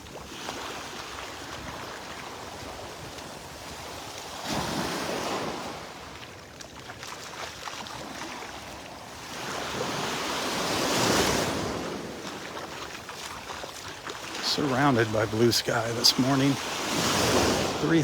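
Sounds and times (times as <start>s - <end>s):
small waves washing onto beach: 0.0s - 18.0s.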